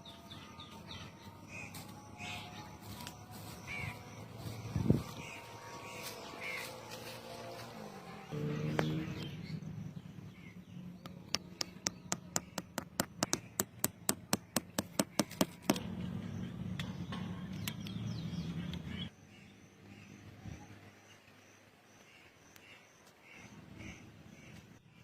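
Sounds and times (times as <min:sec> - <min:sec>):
sharp taps: 0:11.0 - 0:15.8.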